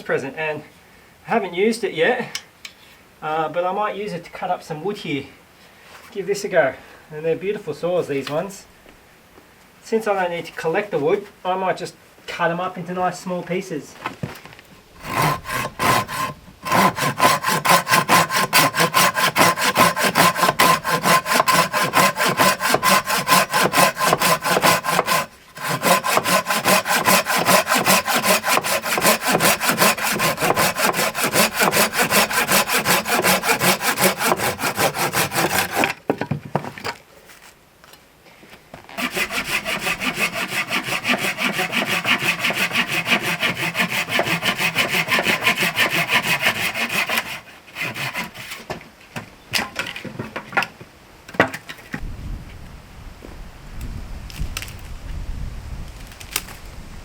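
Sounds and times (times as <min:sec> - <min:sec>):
pull saw cutting wood: 0:15.0 - 0:36.0, 0:38.9 - 0:48.7.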